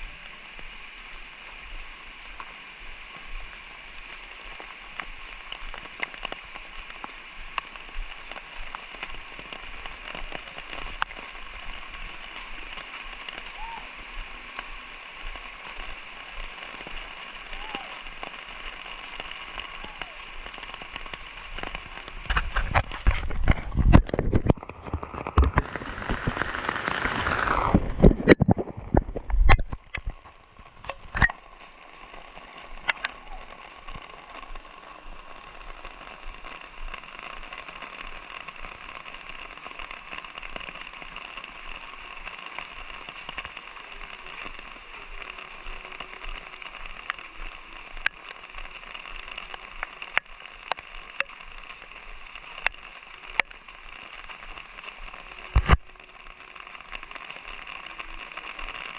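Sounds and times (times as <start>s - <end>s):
light rain falling: 0.0s - 58.9s
rushing noise: 17.4s - 31.3s.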